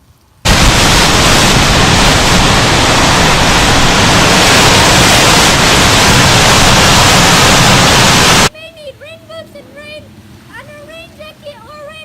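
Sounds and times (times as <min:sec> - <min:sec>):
storm rushing noise: 0:00.5 - 0:08.5.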